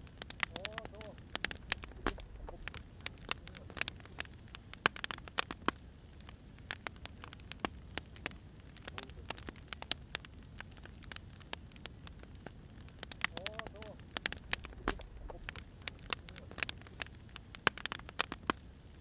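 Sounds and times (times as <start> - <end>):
low rumble of flames: 0.0 - 19.0
wood fire crackling: 0.0 - 19.0.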